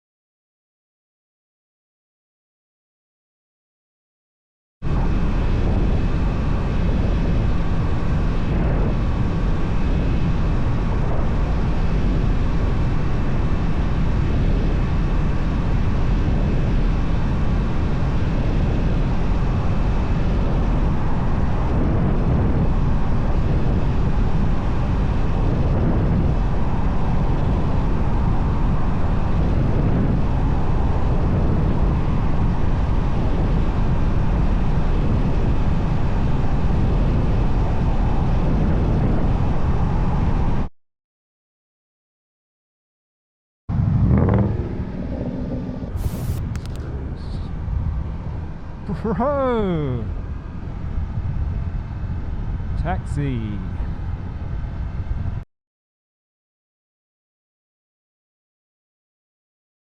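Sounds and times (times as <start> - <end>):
wind rushing over microphone: 4.8 - 40.7, 43.7 - 55.4
motorcycle engine cruising: 43.7 - 46.8.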